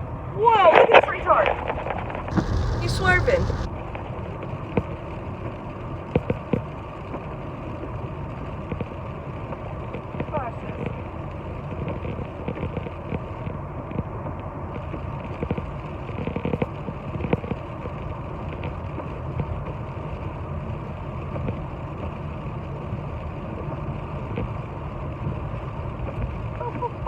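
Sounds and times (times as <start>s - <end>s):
car engine and road noise: 2.3s - 3.8s.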